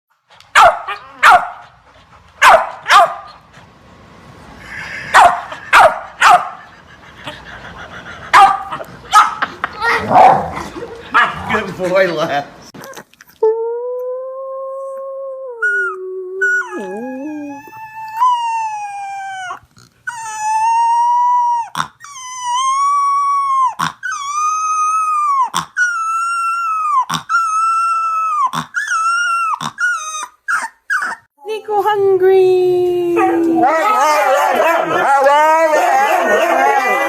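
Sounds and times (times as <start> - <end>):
dog howling: 33.2 - 37.0.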